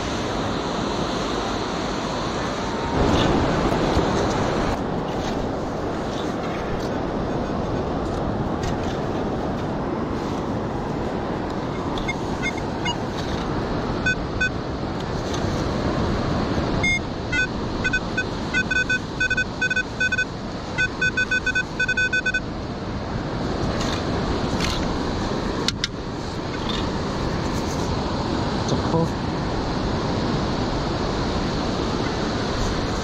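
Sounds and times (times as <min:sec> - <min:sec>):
wind: 0:00.0 - 0:33.0
metal detector beeping: 0:11.7 - 0:13.0, 0:14.0 - 0:14.6, 0:16.8 - 0:22.5.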